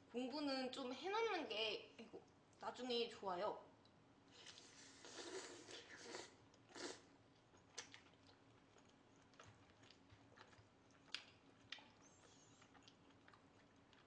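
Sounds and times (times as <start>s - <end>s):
chewing with wet mouth clicks: 6.5s - 14.0s.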